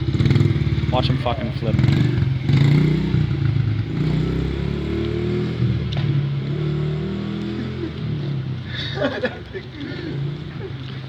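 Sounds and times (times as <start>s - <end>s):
motorbike engine revving: 0.0s - 8.7s.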